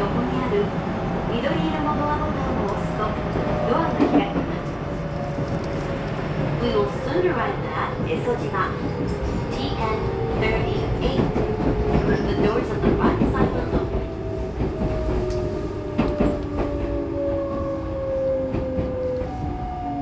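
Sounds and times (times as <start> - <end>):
train wheel noise: 0.0 - 20.0
rail-joint clicks: 7.7 - 17.0.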